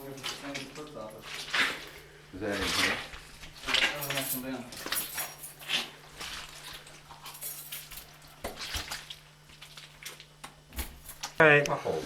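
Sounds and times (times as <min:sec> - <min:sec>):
clicks clinks and rustles: 0:03.8 - 0:05.9, 0:06.6 - 0:08.2.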